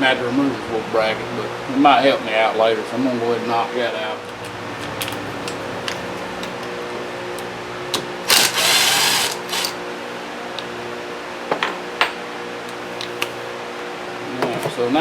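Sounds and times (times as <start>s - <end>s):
shop fan humming: 0.0s - 15.0s
pneumatic tool burst: 8.2s - 9.8s.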